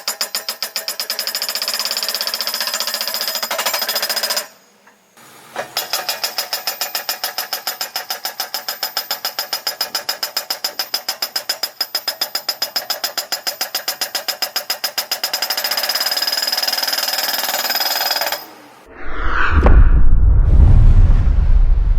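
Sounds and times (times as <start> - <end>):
brief sweeping sound: 18.9 - 21.9
loud low rumble: 18.9 - 21.9.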